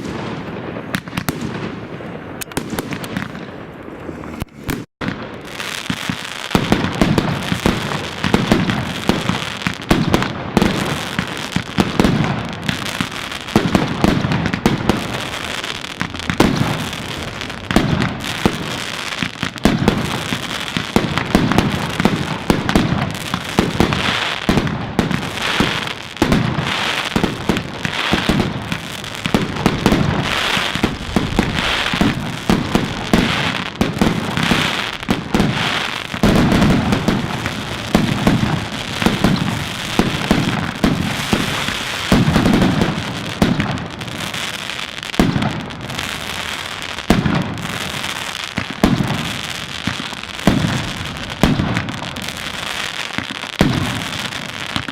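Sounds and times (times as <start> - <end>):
fireworks bangs and crackling: 0.0 - 54.9
deep firework boom: 28.3 - 34.5.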